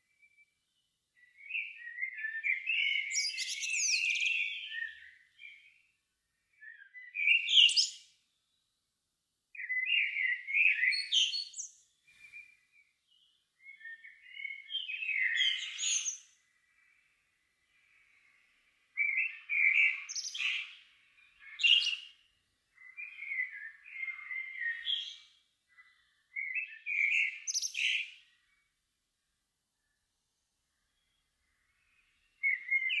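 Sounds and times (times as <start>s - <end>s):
songbird warbling and trilling: 1.2s - 5.6s, 13.2s - 22.1s, 22.8s - 28.6s, 30.9s - 33.0s.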